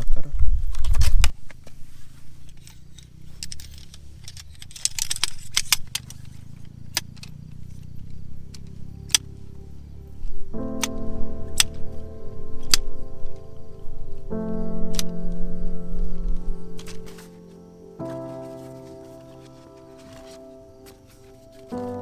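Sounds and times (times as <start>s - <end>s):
low rumble: 7.8s - 18.0s.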